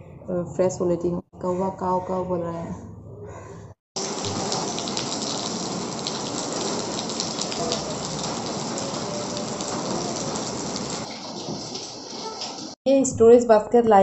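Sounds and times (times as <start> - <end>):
rain falling into puddles: 4.0 - 12.8.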